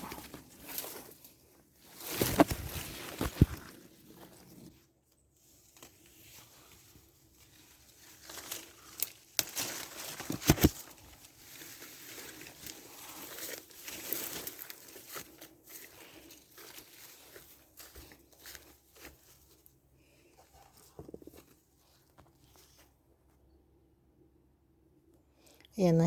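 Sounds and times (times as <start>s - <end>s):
leaves and twigs rustling: 0.0s - 22.9s
twigs snapping: 8.0s - 15.8s.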